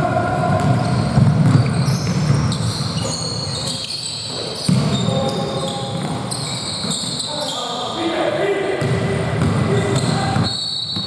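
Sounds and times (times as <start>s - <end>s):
basketball bouncing: 0.4s - 2.8s, 4.6s - 5.0s, 8.8s - 11.0s
sneakers squeaking on court: 0.5s - 8.0s, 8.8s - 11.0s.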